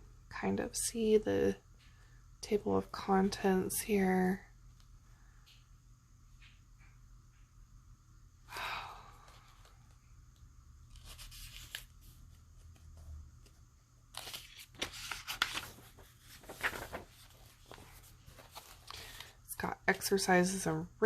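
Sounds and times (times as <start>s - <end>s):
book pages rustling: 10.8s - 19.4s.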